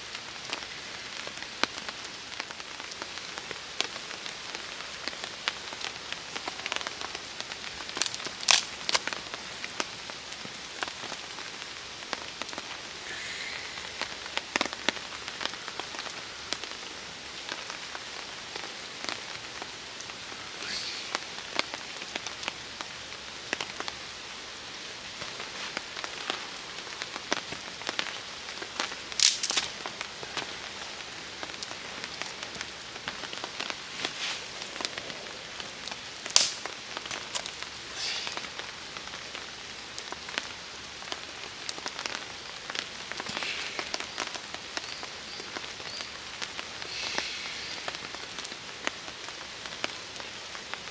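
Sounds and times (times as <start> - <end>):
rain pattering on a tarp: 0.0 - 50.9
loud sharp cracks: 29.2 - 29.8, 36.3 - 37.5.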